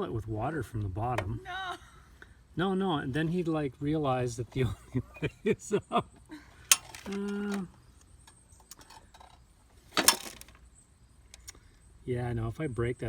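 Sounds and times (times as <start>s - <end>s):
small clicks: 11.3s - 11.6s.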